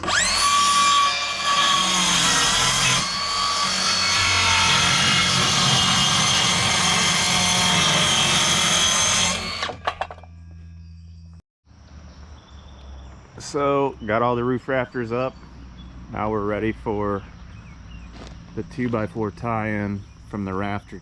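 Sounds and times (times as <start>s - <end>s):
power tool cutting wood: 0.0s - 10.1s.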